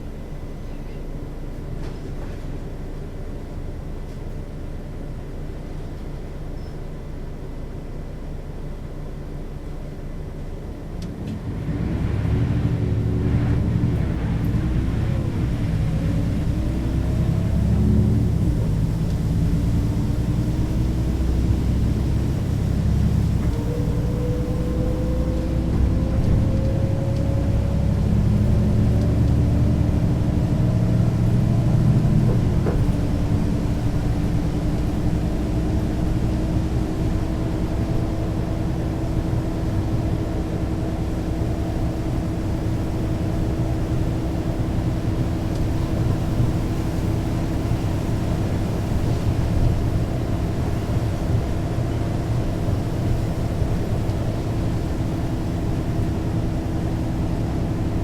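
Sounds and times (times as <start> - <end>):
bus diesel engine under load: 0.0 - 58.0
whine climbing: 12.9 - 36.2.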